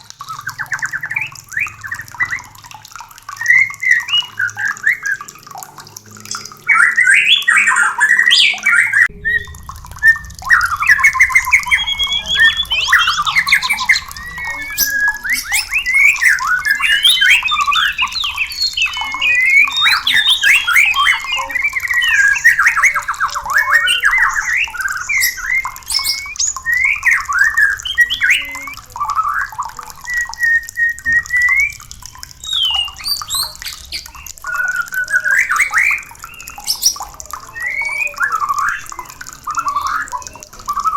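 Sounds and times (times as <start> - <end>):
songbird whistling varied phrases: 6.8 - 28.8.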